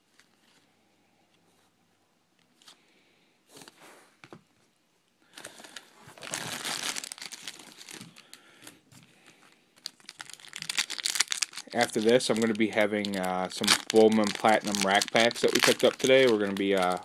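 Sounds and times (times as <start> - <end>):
plastic wrapper tearing and crinkling: 5.3 - 8.7, 9.3 - 17.0.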